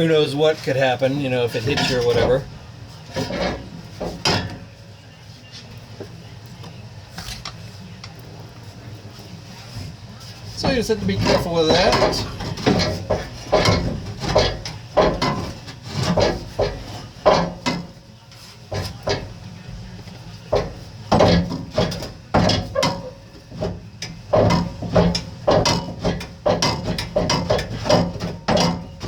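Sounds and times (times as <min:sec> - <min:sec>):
metal clanks and knocks: 0:01.5 - 0:04.8, 0:10.5 - 0:29.0.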